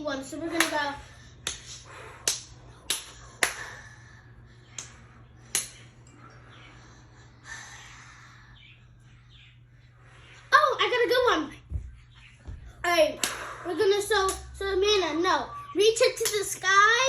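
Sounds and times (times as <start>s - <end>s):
steady low hum: 0.0s - 17.0s
sharp hand snaps: 1.4s - 3.7s, 4.7s - 5.9s.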